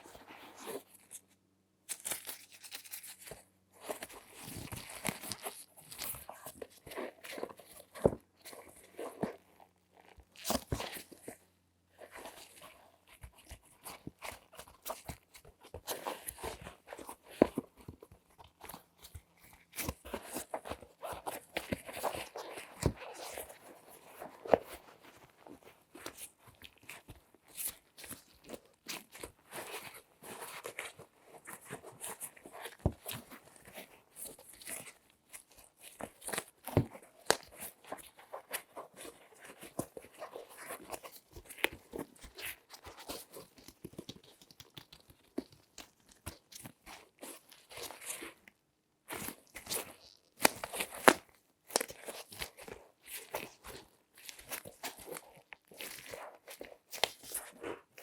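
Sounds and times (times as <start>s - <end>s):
gloved hands crinkling and tapping: 0.0s - 58.0s.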